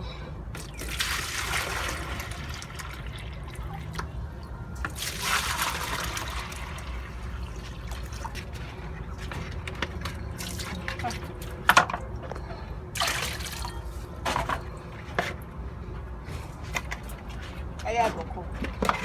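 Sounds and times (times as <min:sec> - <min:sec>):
water pouring and sloshing: 0:00.5 - 0:17.8.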